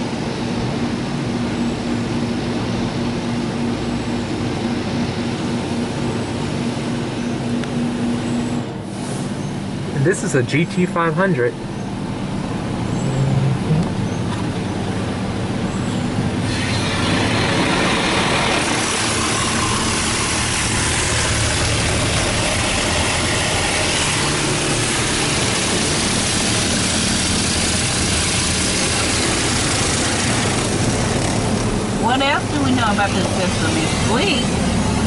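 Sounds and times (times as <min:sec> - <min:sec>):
car wash machine rumble: 0:00.0 - 0:35.0
high-pressure water spray hissing: 0:16.4 - 0:35.0.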